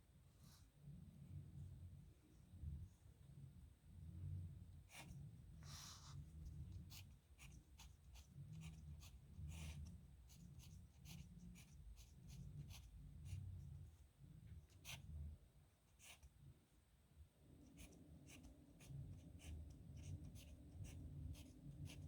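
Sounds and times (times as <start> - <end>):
low steady rumble: 0.1 - 15.8
pen scratching on paper: 4.9 - 13.7, 14.6 - 15.1, 15.9 - 16.3, 17.7 - 22.0.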